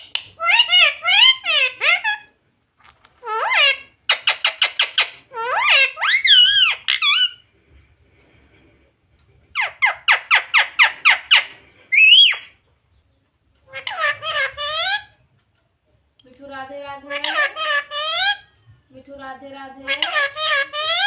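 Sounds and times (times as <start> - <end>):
parrot calling: 0.0 - 2.4, 3.1 - 7.5, 9.5 - 12.7, 13.6 - 15.2, 17.0 - 18.6, 19.8 - 21.0.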